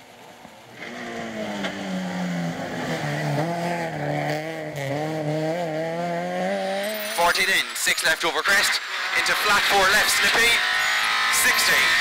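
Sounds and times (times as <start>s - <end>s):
car engine running hard: 0.0s - 12.0s.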